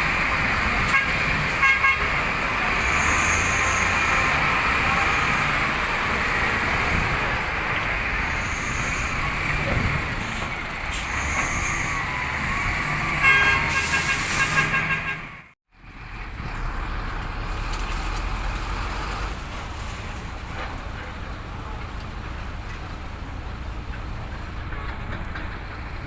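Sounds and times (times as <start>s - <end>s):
diesel truck engine rumble: 0.0s - 26.0s
truck horn: 0.7s - 5.8s, 13.0s - 15.5s.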